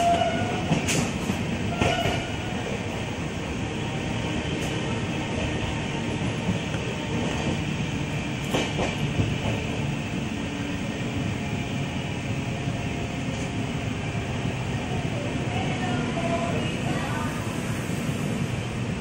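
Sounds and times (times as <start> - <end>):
train clatter: 0.0 - 2.5, 8.4 - 9.9
train wheels rumbling: 0.0 - 19.0.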